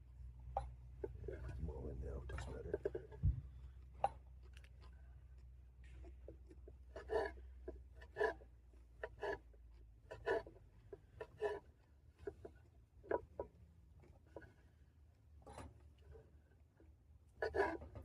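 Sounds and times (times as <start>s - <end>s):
low steady hum: 0.0s - 7.8s
utensil scraping in a pot: 6.9s - 9.5s, 17.4s - 18.0s.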